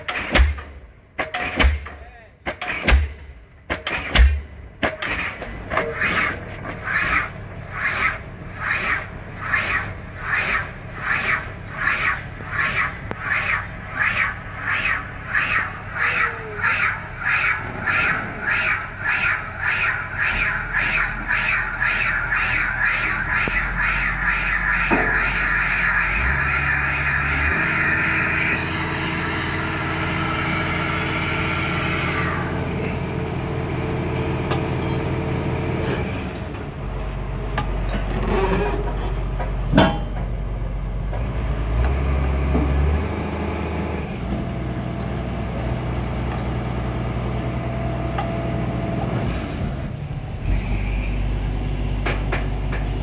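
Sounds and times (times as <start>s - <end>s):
sharp knock: 0.1s - 5.1s
heavy diesel engine running: 10.8s - 53.0s.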